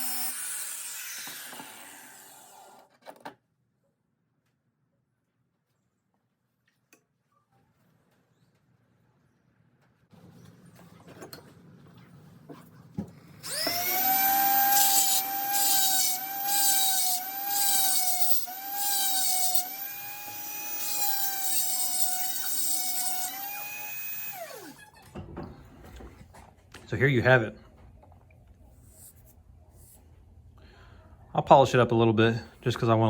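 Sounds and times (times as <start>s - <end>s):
angle grinder grinding steel: 0.0s - 2.8s, 13.4s - 24.8s.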